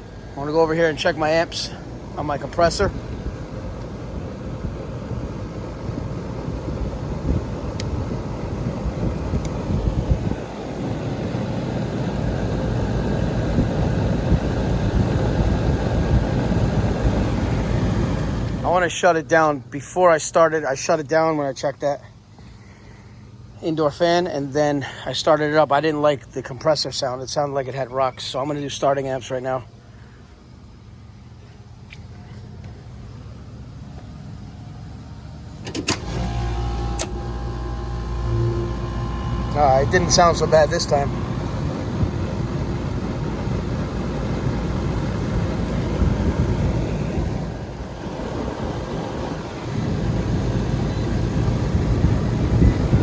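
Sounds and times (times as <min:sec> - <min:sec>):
air conditioner low drone: 0:00.0 - 0:53.0
compressor humming: 0:00.0 - 0:53.0
contactor clicks: 0:35.6 - 0:38.4.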